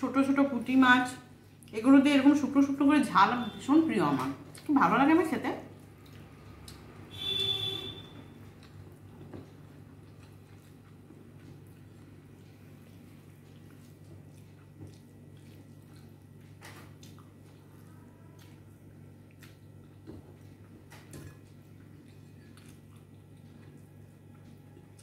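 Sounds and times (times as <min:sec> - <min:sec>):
person chewing: 0:05.7 - 0:07.0, 0:08.4 - 0:25.0.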